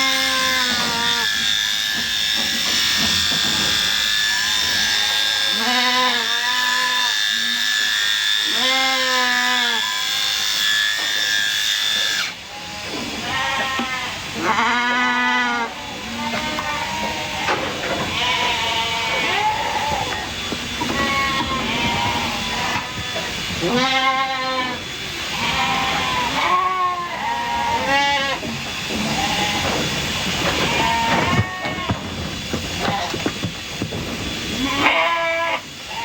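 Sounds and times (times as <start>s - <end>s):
electric sheep shears whining: 0.0s - 36.0s
sheep bleating: 13.3s - 32.1s, 34.6s - 36.0s.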